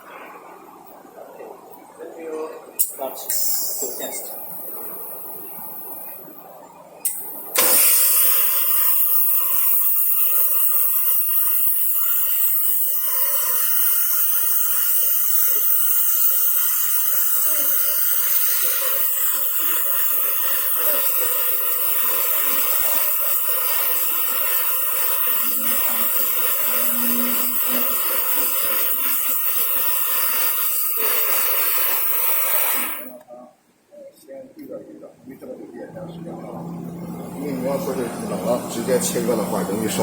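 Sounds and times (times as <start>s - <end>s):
cutting torch flame hissing: 7.0s - 33.2s.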